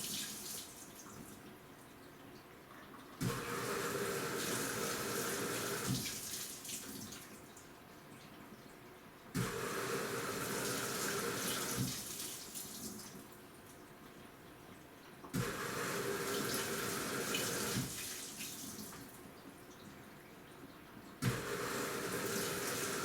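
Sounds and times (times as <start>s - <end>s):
washing machine motor hum: 3.2s - 6.3s, 9.4s - 12.2s, 15.4s - 18.4s, 21.2s - 23.0s.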